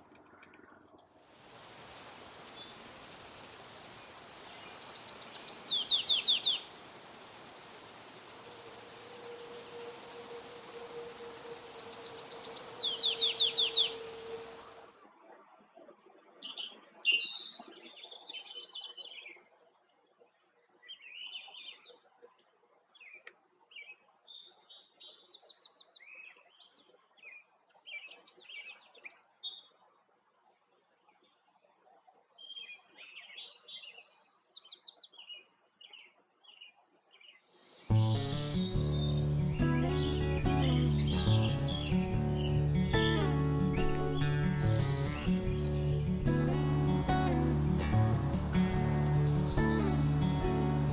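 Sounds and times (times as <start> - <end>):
steady hum and hiss: 1.2 - 15.0, 37.7 - 50.9
songbirds singing: 2.3 - 14.9, 34.6 - 50.9.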